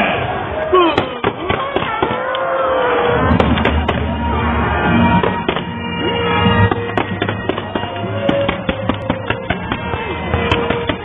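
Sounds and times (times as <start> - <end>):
music playing: 2.8 - 11.0
fireworks crackling and popping: 5.1 - 11.0.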